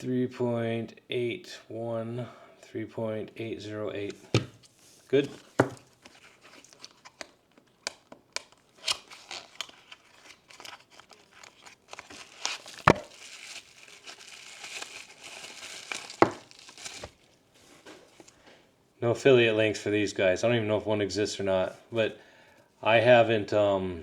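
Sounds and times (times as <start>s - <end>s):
plastic packaging crinkling and tearing: 5.4s - 17.4s.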